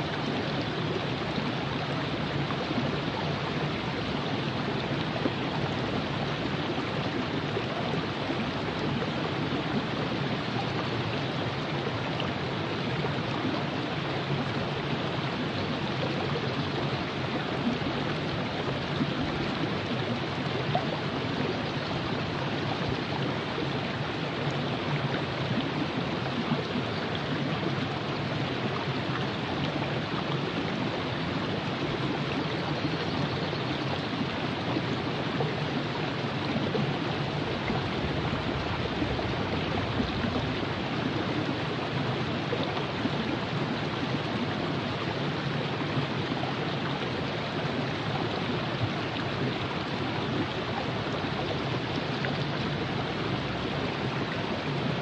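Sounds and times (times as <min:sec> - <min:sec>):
river flowing over rocks: 0:00.0 - 0:55.0.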